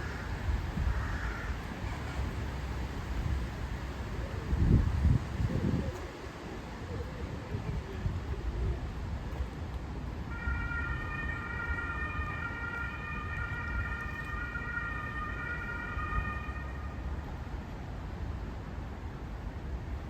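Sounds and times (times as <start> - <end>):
wind rumble on microphone: 0.0 - 20.0
emergency vehicle siren: 10.3 - 17.3.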